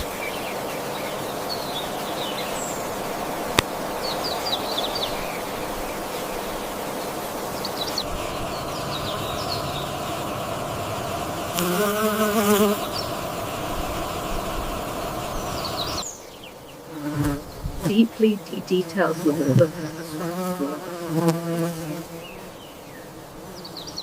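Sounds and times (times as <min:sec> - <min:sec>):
small birds chirping: 0:00.0 - 0:21.0
steady outdoor hiss: 0:00.0 - 0:24.0.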